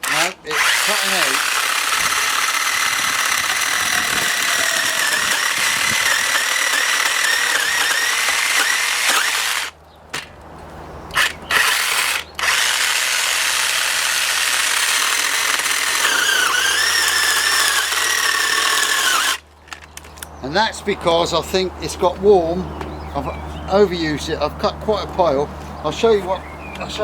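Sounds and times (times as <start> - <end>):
battery chainsaw whirring: 0.0 - 10.4, 11.1 - 19.4.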